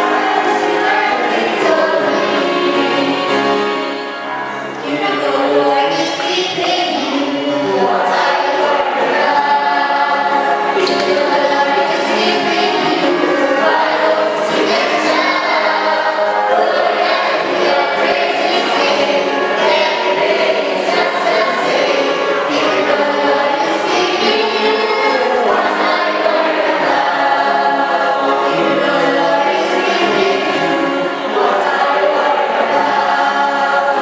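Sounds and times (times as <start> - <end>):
choir singing: 0.0 - 34.0.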